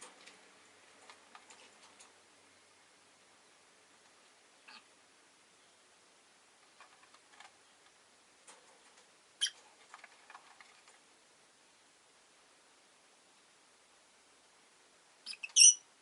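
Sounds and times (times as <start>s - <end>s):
birds ticking and clicking in cage: 0.0s - 2.4s, 6.6s - 11.1s, 15.3s - 15.8s.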